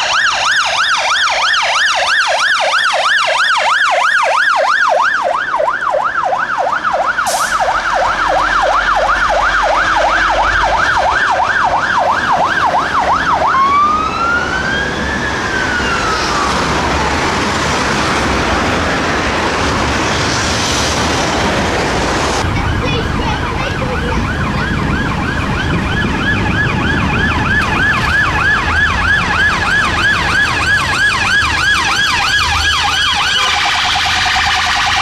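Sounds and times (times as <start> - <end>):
fire engine siren: 0.0 - 35.0
road and traffic noise: 0.0 - 35.0.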